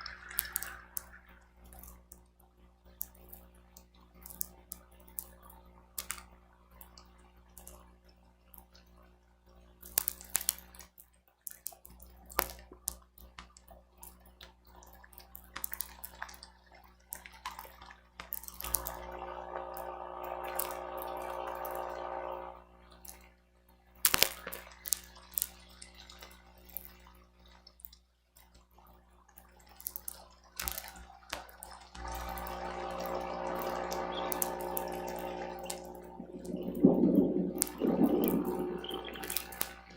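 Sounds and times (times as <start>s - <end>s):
rain drops tapping: 18.3s - 22.5s, 32.0s - 39.9s
gusts of rain and wind: 35.9s - 39.8s.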